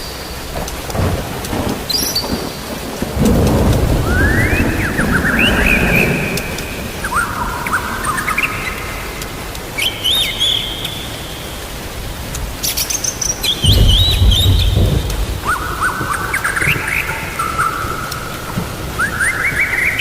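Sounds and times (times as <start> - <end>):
steady rain: 0.0 - 20.0
thunder rumble: 0.3 - 9.6, 13.4 - 20.0
songbird whistling: 4.0 - 9.0, 9.8 - 11.4, 12.7 - 18.4, 19.0 - 20.0.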